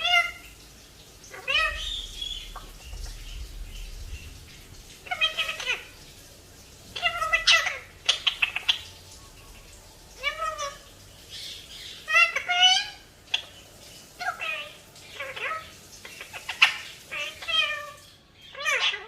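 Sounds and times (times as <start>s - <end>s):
parrot meow-like calls: 0.0s - 0.5s, 1.3s - 3.2s, 5.0s - 6.0s, 6.9s - 9.0s, 10.1s - 11.0s, 11.9s - 13.5s, 14.2s - 19.0s.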